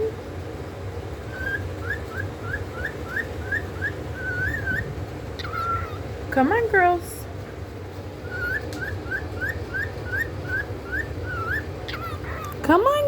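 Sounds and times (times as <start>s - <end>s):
parrot whistling: 1.3s - 6.1s, 8.2s - 12.7s.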